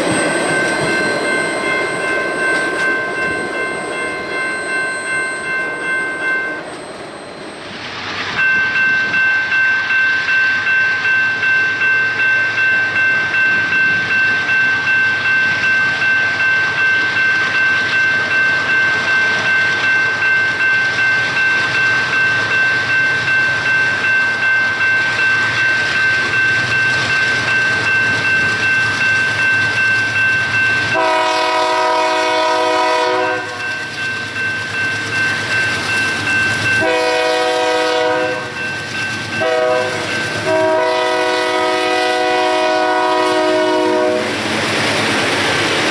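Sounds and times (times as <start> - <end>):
crossing warning bell ringing: 0.0 - 45.9
locomotive air horn blasts: 31.0 - 33.6, 36.8 - 38.6, 39.4 - 44.3.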